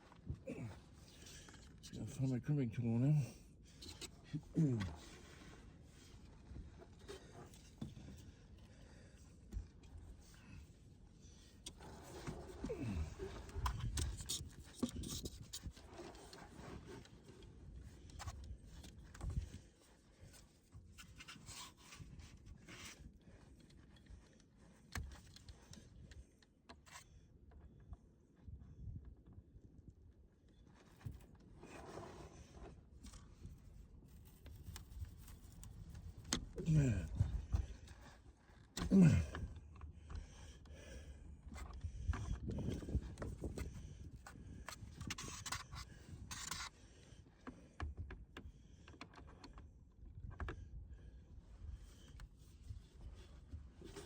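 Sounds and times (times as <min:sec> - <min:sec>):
rustling and scraping: 0:03.6 - 0:08.8, 0:09.5 - 0:25.8, 0:30.6 - 0:47.7, 0:51.6 - 0:54.0.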